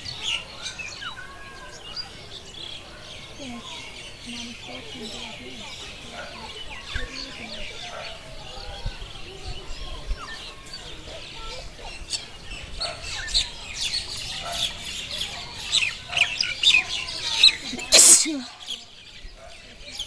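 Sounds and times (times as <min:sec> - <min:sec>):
small birds chirping chorus: 0:00.0 - 0:20.0.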